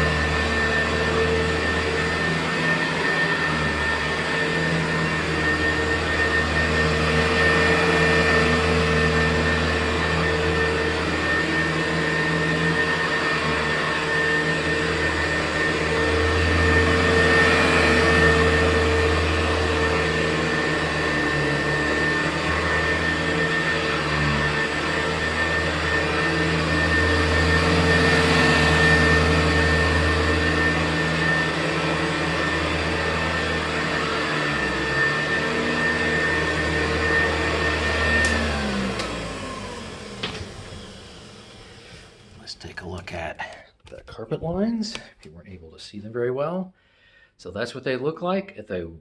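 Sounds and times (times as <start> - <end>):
vacuum cleaner running on carpet: 0.0 - 43.3.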